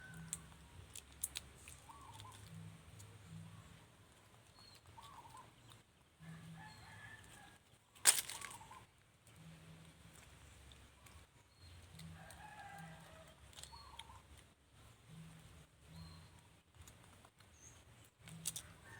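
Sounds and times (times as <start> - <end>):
wavering animal squeaks: 4.6 - 5.6.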